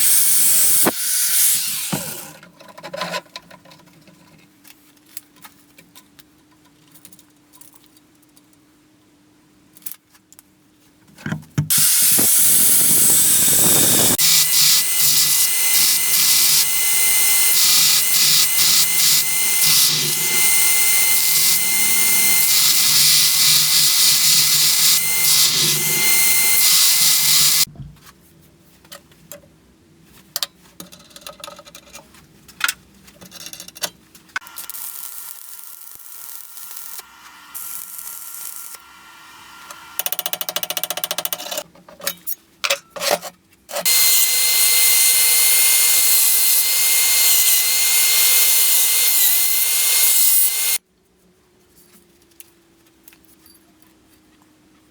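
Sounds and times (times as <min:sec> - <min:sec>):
electric power tool whining: 0:00.0 - 0:02.3, 0:11.7 - 0:27.7, 0:43.8 - 0:50.8.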